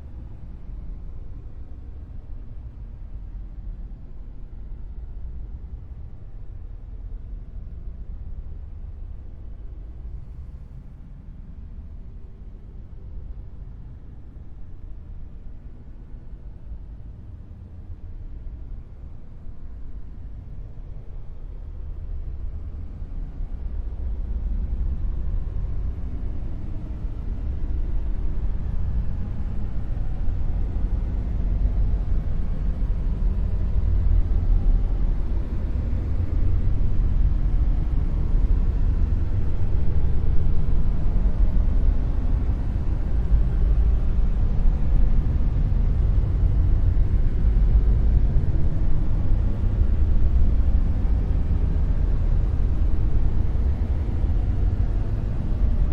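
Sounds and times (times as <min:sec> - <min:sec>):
deep rumbling noise hiss: 0:18.6 - 0:55.9.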